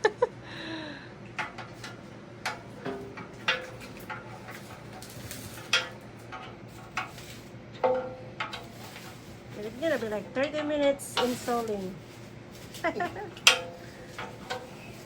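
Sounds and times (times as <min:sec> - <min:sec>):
metal parts clanking: 0:12.7 - 0:15.0.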